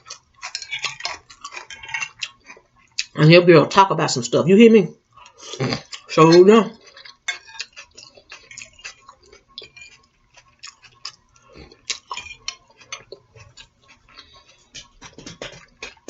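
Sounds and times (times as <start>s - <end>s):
mouth clicks and smacks chewing: 6.8s - 16.0s.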